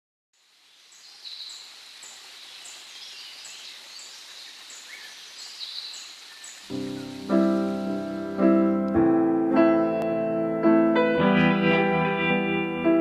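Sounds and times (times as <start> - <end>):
small birds chirping: 0.4 - 8.6
outdoor ambience hiss: 0.4 - 9.0.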